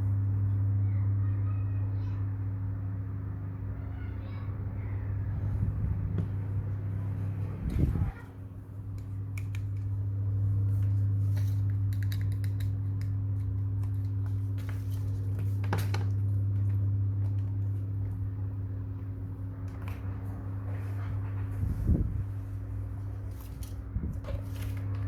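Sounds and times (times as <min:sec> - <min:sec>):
low electrical hum: 0:00.0 - 0:25.0
small clicks and taps: 0:08.9 - 0:10.0, 0:11.4 - 0:14.8.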